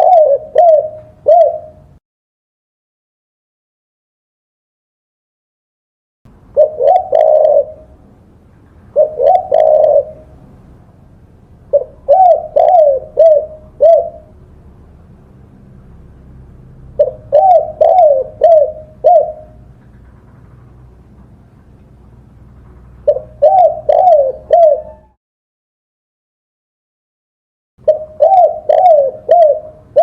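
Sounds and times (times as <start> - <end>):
dove cooing: 0.0 - 2.0, 6.6 - 8.0, 8.9 - 10.5, 11.7 - 14.4, 17.0 - 20.6, 23.0 - 25.2, 27.8 - 30.0.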